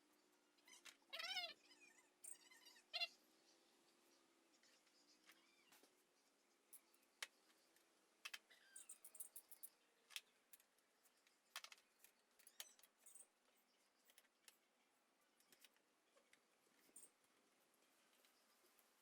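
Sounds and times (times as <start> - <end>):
faint small clicks and taps: 6.7 - 18.9.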